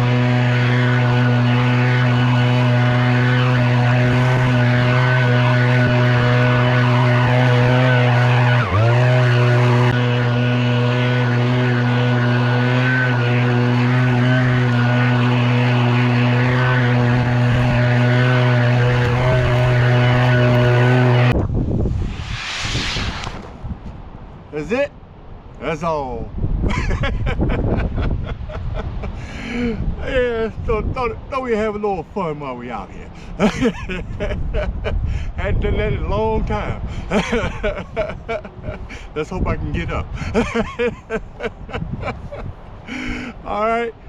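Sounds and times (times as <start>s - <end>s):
small engine running: 0.0s - 21.3s.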